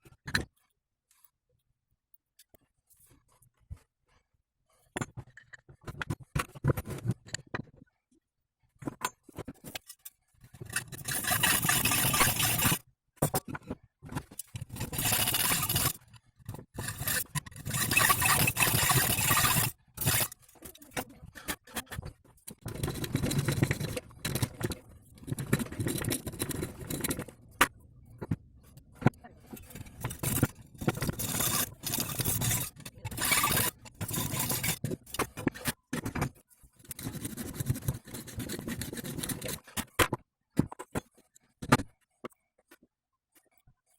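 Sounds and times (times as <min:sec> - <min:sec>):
scraping on metal: 0:10.6 - 0:12.8, 0:14.6 - 0:20.4, 0:29.5 - 0:35.7.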